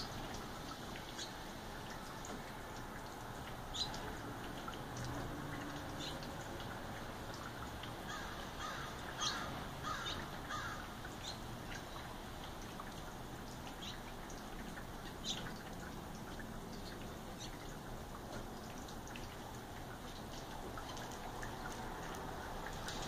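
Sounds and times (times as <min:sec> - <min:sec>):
small birds chirping: 0:01.1 - 0:01.4, 0:03.7 - 0:04.1, 0:06.0 - 0:06.3, 0:08.1 - 0:12.1, 0:13.7 - 0:14.1, 0:15.0 - 0:15.6.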